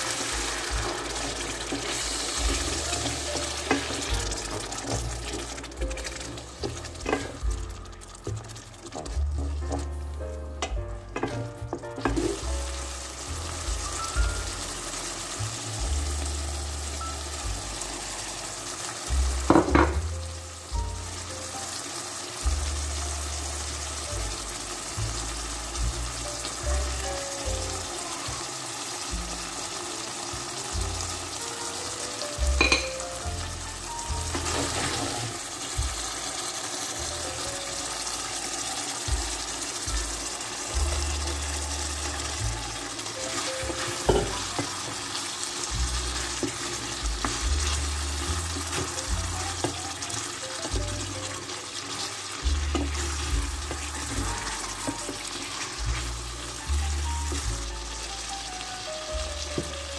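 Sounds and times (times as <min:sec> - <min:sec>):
sauce sizzling and bubbling: 0:00.0 - 0:59.9
wooden spoon stirring: 0:00.6 - 0:12.4, 0:41.0 - 0:57.5.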